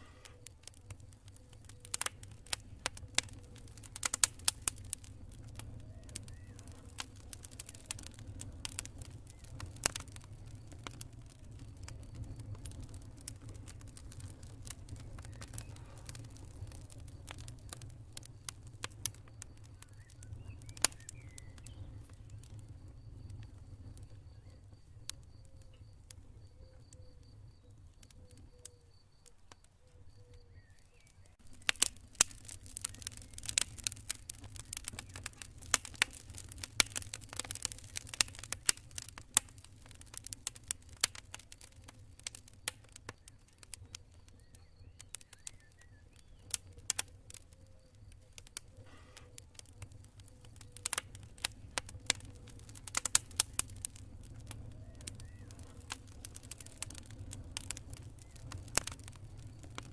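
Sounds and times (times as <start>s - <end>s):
campfire crackling: 0.0s - 59.9s
crickets chirping: 16.6s - 33.0s.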